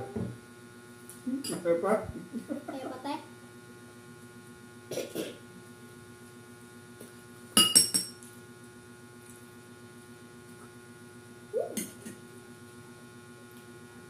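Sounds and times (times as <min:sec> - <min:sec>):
electrical hum: 0:00.0 - 0:14.0
object clinking against glass: 0:07.6 - 0:08.2.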